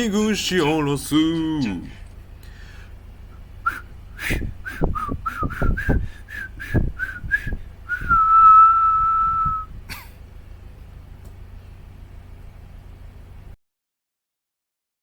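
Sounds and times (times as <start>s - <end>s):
person whistling a tune: 3.6s - 9.7s.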